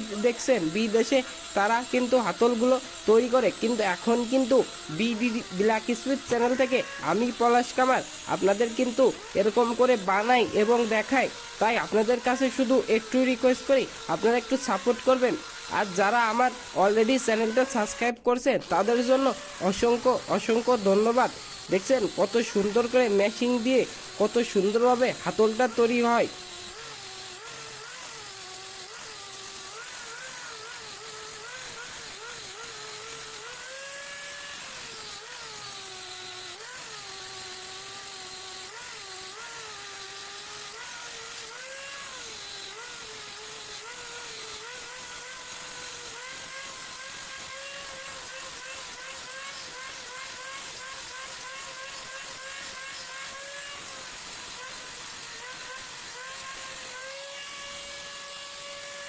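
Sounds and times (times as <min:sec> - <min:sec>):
hiss of grinding wood: 0:00.0 - 0:43.8
grinding machine motor: 0:00.0 - 0:59.0.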